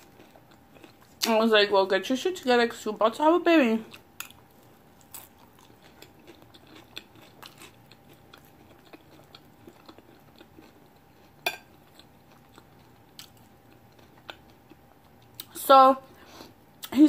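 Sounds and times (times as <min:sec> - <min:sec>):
person chewing salad: 0:00.0 - 0:01.3, 0:03.8 - 0:15.6.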